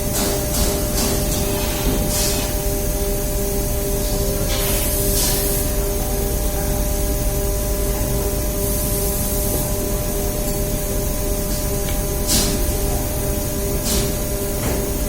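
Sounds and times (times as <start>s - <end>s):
machinery rumbling and humming: 0.0s - 15.0s.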